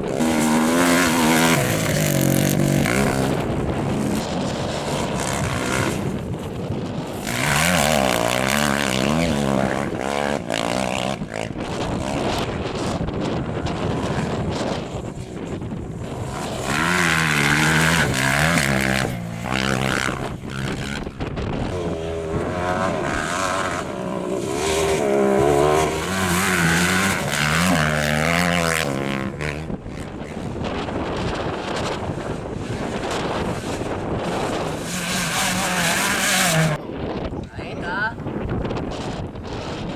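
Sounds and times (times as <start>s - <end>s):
racing engine revving hard: 0.0s - 6.5s, 7.1s - 12.2s, 15.9s - 29.6s, 32.8s - 36.8s.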